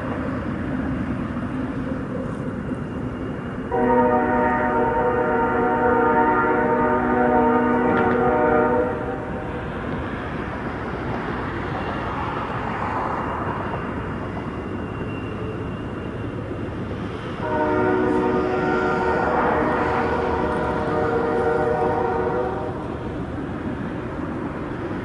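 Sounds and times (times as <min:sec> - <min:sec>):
train rolling past rumble: 0:00.0 - 0:25.0
locomotive air horn: 0:03.7 - 0:09.4, 0:17.4 - 0:22.8.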